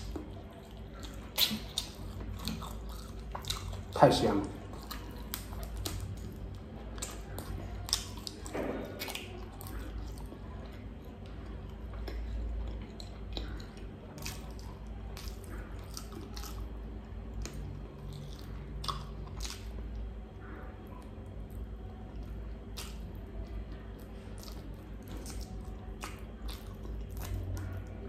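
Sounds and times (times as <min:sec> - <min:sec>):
mouth clicks and smacks: 0:00.0 - 0:06.3
man chewing wetly: 0:00.0 - 0:28.0.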